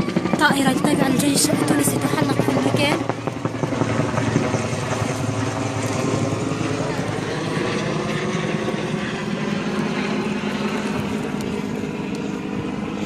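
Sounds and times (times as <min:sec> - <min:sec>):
aircraft engine drone: 0:00.0 - 0:13.0.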